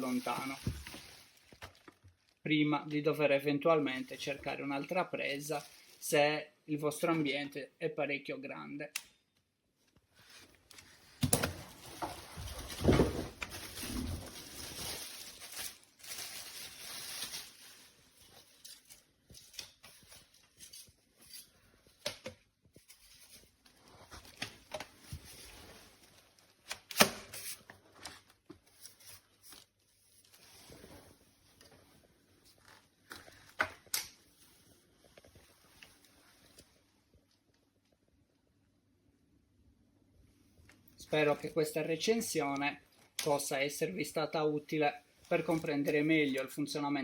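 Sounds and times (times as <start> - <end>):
packaging rustling: 0.0 - 2.4, 10.3 - 22.1.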